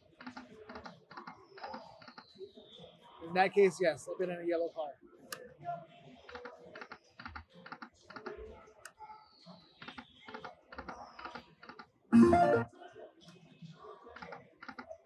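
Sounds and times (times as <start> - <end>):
falling electronic tone: 12.2 - 12.7
slot machine clicks: 12.2 - 12.7.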